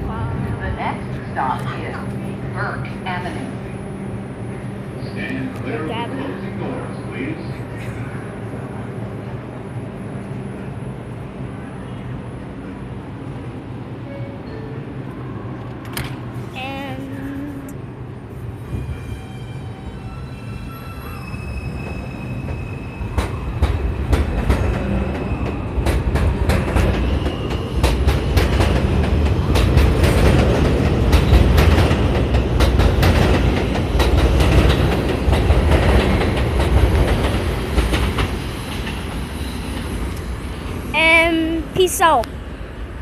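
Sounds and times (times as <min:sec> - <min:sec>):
subway train pulling out: 0:00.0 - 0:43.0
train wheels clicking on rails: 0:21.8 - 0:42.4.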